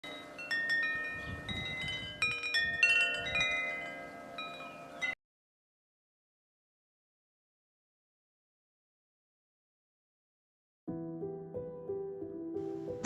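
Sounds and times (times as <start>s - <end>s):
wind chimes ringing: 0.0s - 5.2s.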